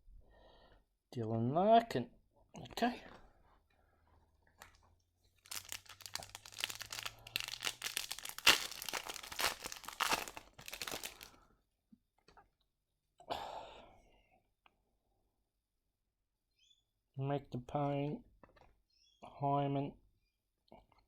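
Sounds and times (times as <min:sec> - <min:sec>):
plastic foil wrapper crinkling: 0:05.4 - 0:11.4.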